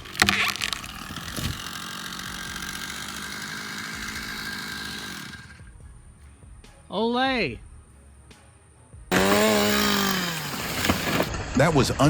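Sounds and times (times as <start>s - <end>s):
chainsaw engine running: 0.0s - 5.8s, 9.1s - 11.3s.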